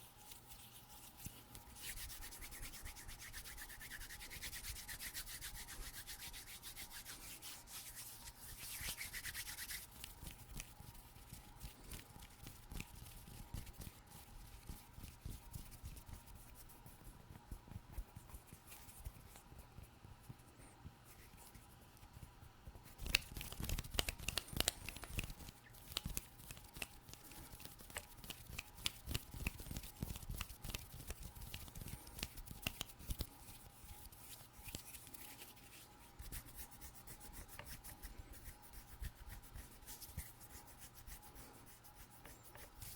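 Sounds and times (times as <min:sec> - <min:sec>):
skin rubbing against skin: 0:00.0 - 0:19.9, 0:21.0 - 0:42.9
light finger taps and clicks: 0:22.7 - 0:33.6.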